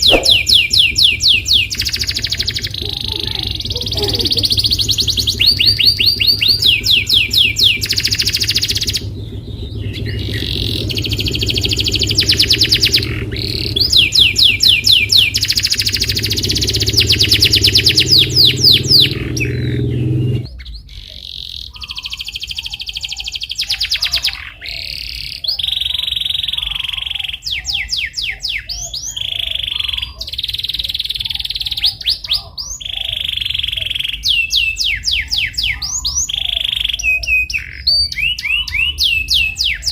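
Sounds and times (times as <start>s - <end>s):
low background rumble: 0.0s - 20.8s
canary singing: 0.0s - 39.9s.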